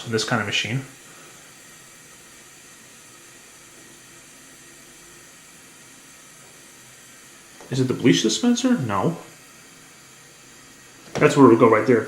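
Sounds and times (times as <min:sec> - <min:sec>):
washer water spraying hiss: 0:00.0 - 0:12.0.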